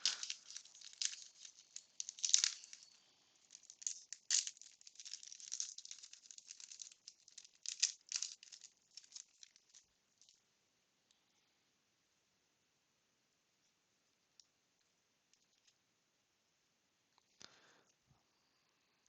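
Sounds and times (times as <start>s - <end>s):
wax-paper wrapper crinkling: 0.0s - 10.4s.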